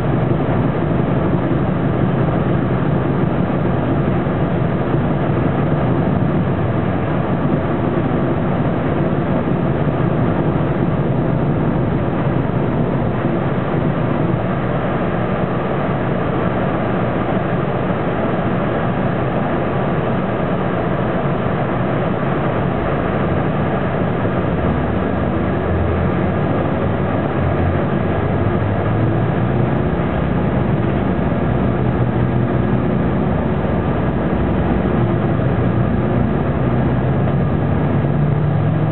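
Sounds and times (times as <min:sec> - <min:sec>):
air conditioning running: 0:00.0 - 0:38.9
bus diesel engine drone: 0:00.0 - 0:38.9.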